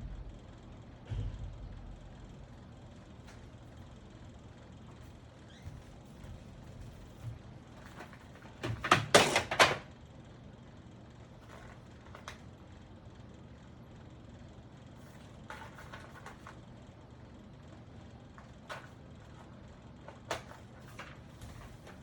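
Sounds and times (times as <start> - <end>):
handling noises: 4.9 - 9.8, 18.3 - 22.0.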